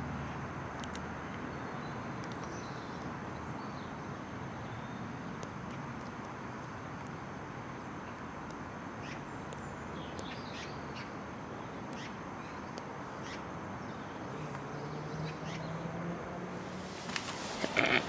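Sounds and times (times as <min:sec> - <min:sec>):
birds chirping and calling: 0:17.3 - 0:18.0.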